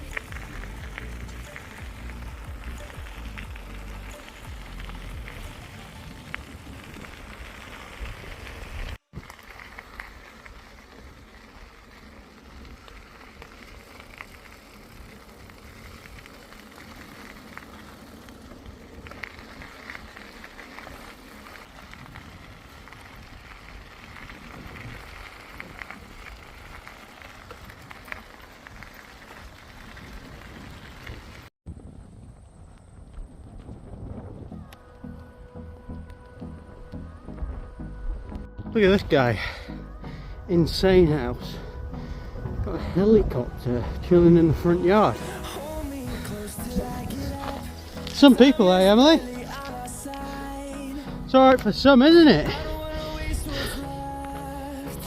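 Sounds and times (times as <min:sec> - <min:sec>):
wind on microphone: 0:00.0 - 0:09.3, 0:21.7 - 0:27.0, 0:28.8 - 0:38.7
small ticks and rattles: 0:00.0 - 0:31.4
bicycle tyre trail noise: 0:00.0 - 0:55.0.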